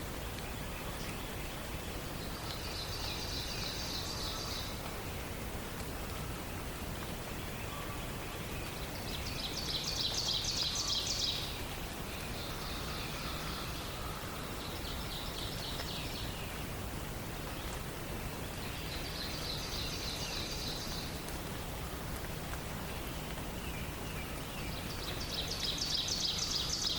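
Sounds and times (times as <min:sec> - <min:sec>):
forest ambience hiss: 0:00.0 - 0:26.9
songbirds trilling: 0:06.0 - 0:26.9.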